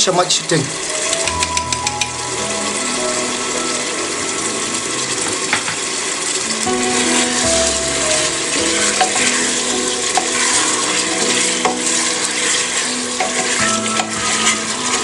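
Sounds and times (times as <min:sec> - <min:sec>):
curry sizzling: 0:00.0 - 0:15.0
spatula scraping: 0:08.5 - 0:15.0.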